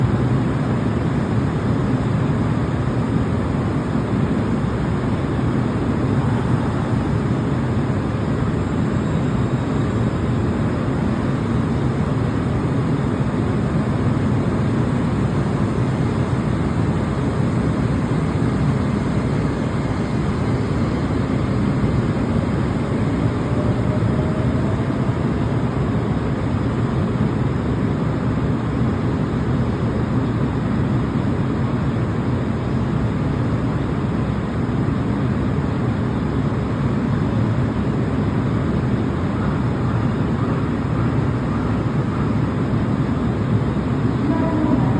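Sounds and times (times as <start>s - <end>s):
electric train rumble: 0.0s - 44.9s
faint rising whine: 5.6s - 26.5s.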